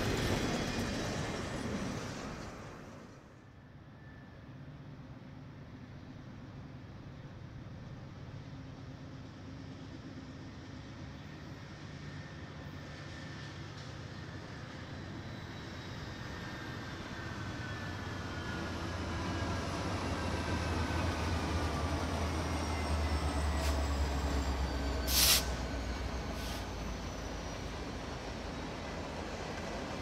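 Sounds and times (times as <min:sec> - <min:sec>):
sharp hiss burst: 0:25.1 - 0:25.6.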